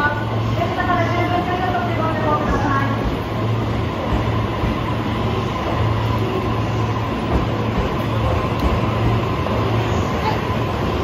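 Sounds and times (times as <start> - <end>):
electric train whine: 0.0 - 11.0
train cars rumbling: 0.0 - 11.0.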